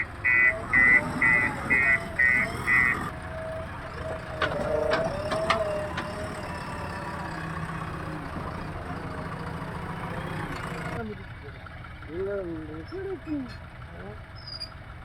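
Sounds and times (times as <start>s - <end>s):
reversing alarm beeping: 0.0s - 6.4s
diesel engine running: 0.0s - 15.0s.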